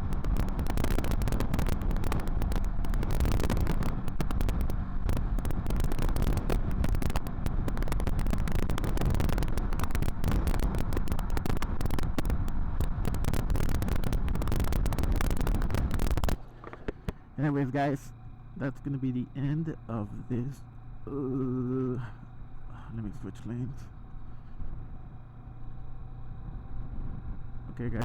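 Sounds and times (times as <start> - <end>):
wind buffeting microphone: 0.0 - 17.2, 26.3 - 28.0
motorcycle engine rumble: 0.0 - 28.0
road noise: 0.0 - 28.0.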